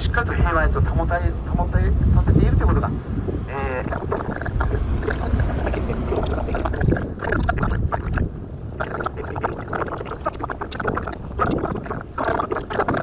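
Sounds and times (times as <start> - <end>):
boat engine low rumble: 0.0 - 13.0
wind on microphone: 0.0 - 13.0
choppy garbled sounds: 3.5 - 13.0.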